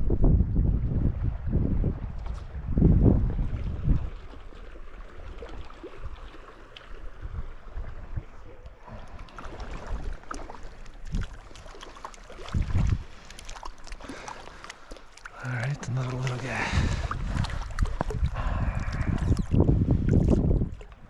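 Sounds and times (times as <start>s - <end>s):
wind buffeting microphone: 0.0s - 6.3s, 7.0s - 10.4s, 12.4s - 13.2s, 15.5s - 21.0s
river flowing: 8.8s - 19.0s.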